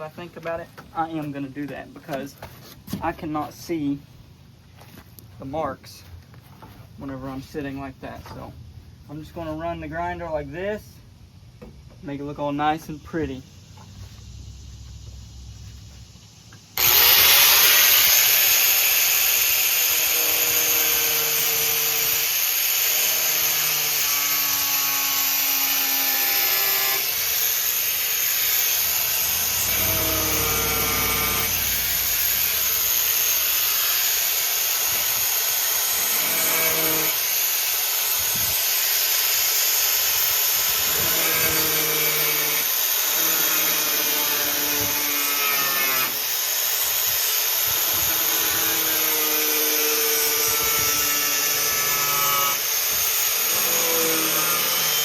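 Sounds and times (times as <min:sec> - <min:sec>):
angle grinder cutting steel: 0:16.8 - 0:55.0.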